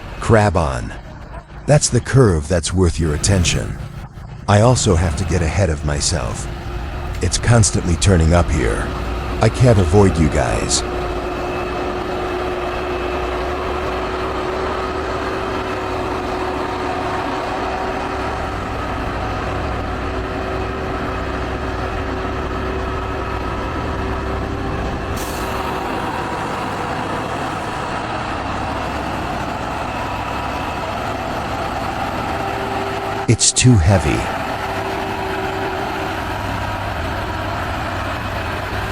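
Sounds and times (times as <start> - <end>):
steady hum: 0.0 - 24.1
heavy diesel trucks running: 0.0 - 38.9.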